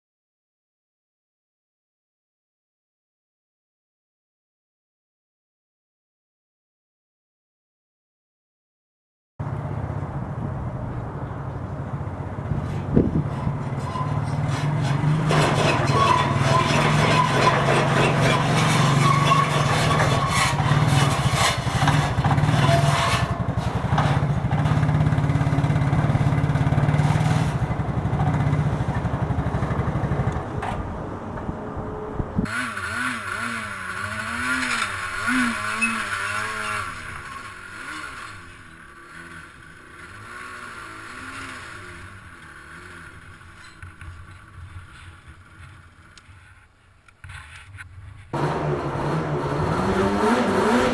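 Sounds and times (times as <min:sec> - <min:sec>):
atv engine running: 0:21.7 - 0:46.1, 0:48.4 - 0:50.9.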